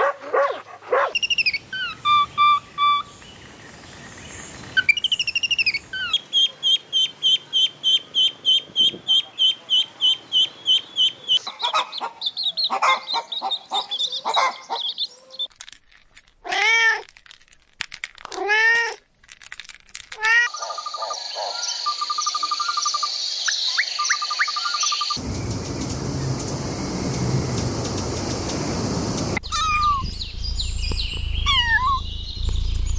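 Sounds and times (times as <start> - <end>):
bird high chirps: 0.0 - 3.3, 4.8 - 15.5, 20.5 - 32.9
steady hiss with trills: 25.2 - 29.4
cat meowing: 31.5 - 32.0.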